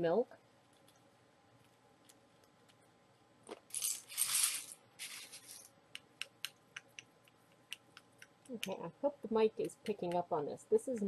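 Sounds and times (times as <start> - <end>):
rustling cereal in bowl: 3.7 - 5.7.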